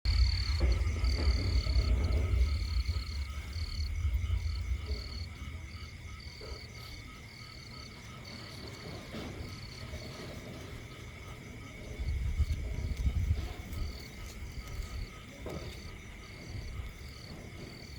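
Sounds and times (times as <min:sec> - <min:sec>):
loud low rumble: 0:00.1 - 0:06.8.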